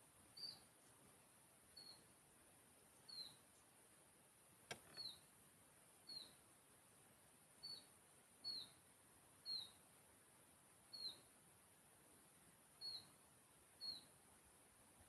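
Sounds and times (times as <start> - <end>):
faint hiss: 0.0 - 15.0
small bird call: 0.3 - 0.8, 1.7 - 2.1, 3.0 - 3.5, 4.7 - 5.3, 6.0 - 6.4, 7.6 - 9.9, 10.9 - 11.4, 12.8 - 13.2, 13.8 - 14.2
sharp click: 4.7 - 5.1.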